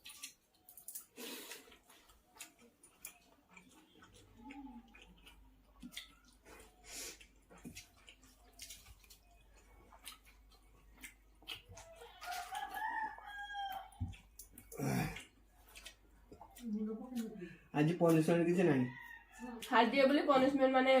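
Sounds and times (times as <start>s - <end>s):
rooster crowing: 12.0s - 14.0s.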